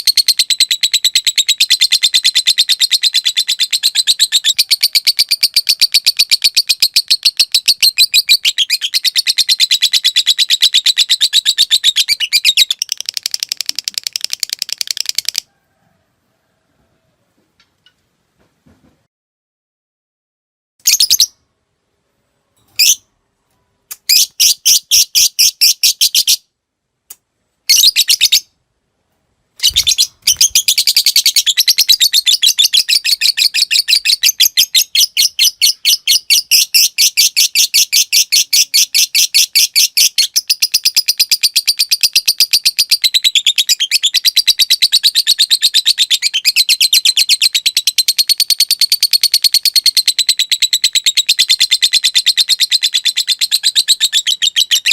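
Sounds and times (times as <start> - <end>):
lovebird rapid high clicks: 12.6 - 15.5, 29.6 - 32.9
lovebird chattering trill: 29.6 - 54.9.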